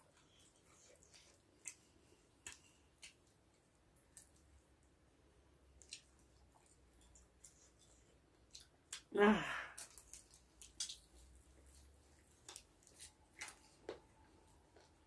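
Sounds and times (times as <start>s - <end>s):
chewing clicks and smacks: 0.1s - 4.6s, 5.7s - 9.1s, 9.8s - 15.0s
person gasping ah: 9.2s - 9.8s.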